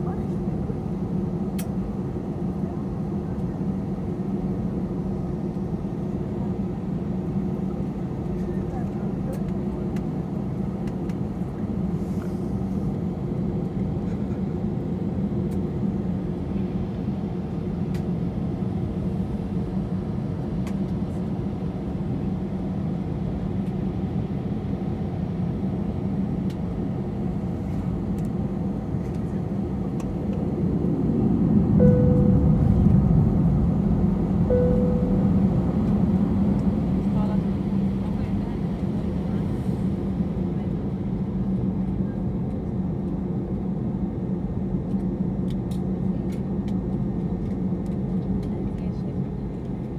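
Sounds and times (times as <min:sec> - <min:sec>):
jet engine rumble in cabin: 0:00.0 - 0:49.9
short high tones: 0:31.8 - 0:32.9, 0:34.5 - 0:35.8.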